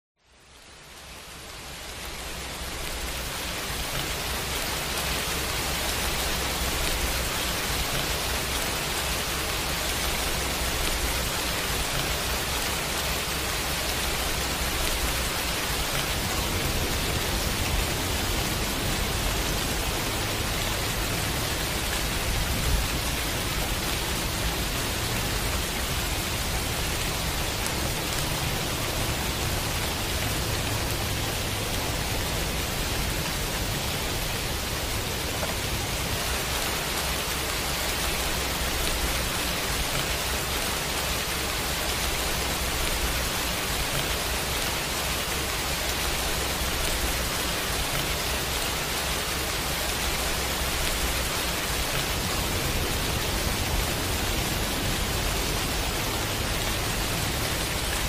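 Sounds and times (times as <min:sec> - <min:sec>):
heavy rain pouring: 0:00.2 - 0:58.0.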